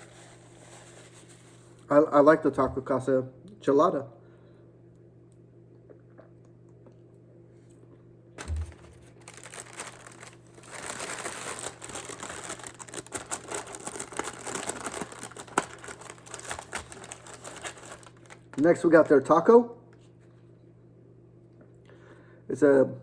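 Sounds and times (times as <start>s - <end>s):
paper wrapping crinkling: 0.0s - 1.8s, 8.4s - 19.3s.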